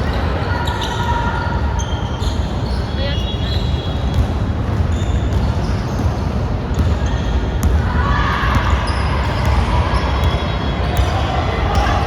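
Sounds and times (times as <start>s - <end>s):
shoe squeaks: 1.8s - 4.2s, 4.8s - 7.4s.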